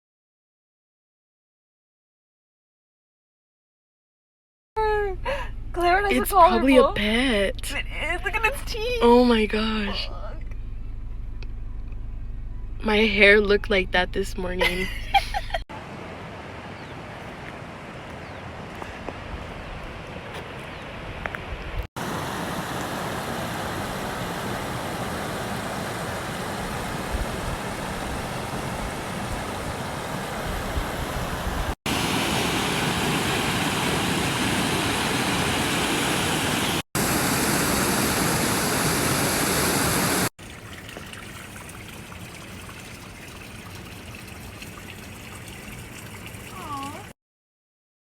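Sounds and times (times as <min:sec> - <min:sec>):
creek water rushing: 0:15.7 - 0:21.2, 0:22.0 - 0:46.6.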